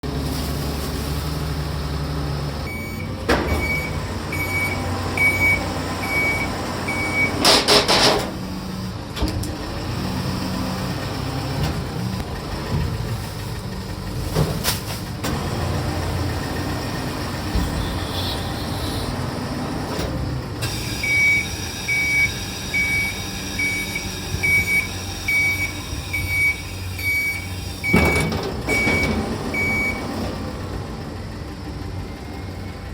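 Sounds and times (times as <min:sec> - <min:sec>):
garbage truck engine and hydraulics: 0:00.0 - 0:32.9
heavy clunk: 0:03.2 - 0:04.0, 0:27.8 - 0:29.9.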